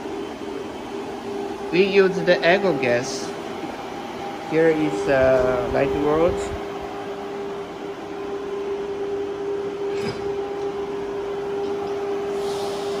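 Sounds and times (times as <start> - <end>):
cooling fans humming: 0.0 - 13.0.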